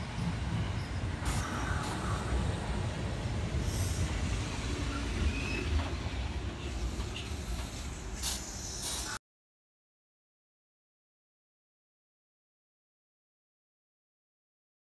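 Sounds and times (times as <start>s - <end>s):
electric train rumbling past: 0.0s - 9.2s.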